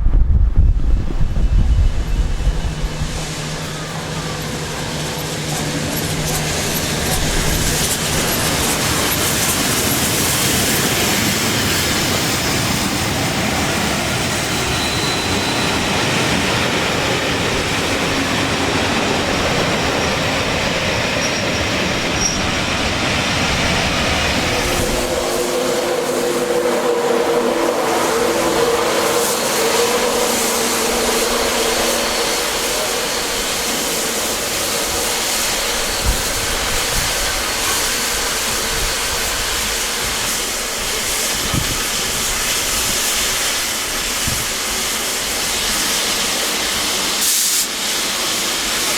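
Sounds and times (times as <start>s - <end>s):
train wheels roaring on rails: 0.0s - 48.9s
steady squealing tones: 13.8s - 37.8s.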